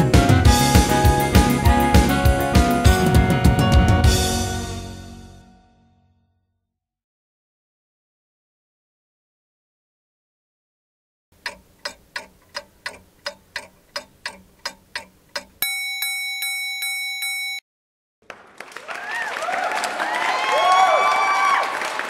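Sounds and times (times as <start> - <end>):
clock ticking: 11.4 - 17.6.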